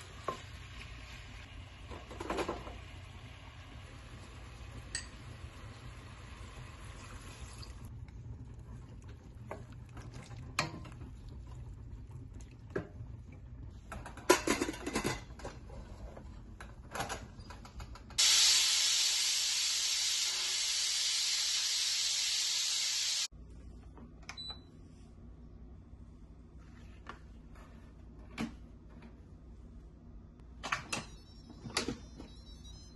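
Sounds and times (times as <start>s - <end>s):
kitchen clatter: 1.8s - 2.9s, 13.9s - 16.0s
kitchen knocks and clinks: 13.9s - 15.6s
rushing hiss: 18.2s - 23.3s.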